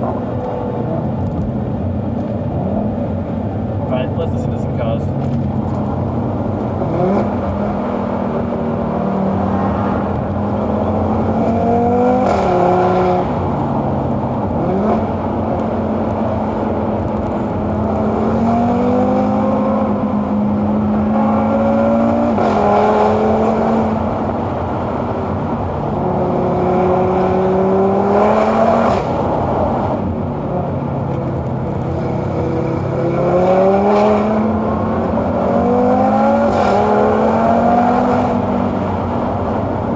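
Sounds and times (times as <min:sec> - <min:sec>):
sports car engine accelerating: 0:00.0 - 0:39.9.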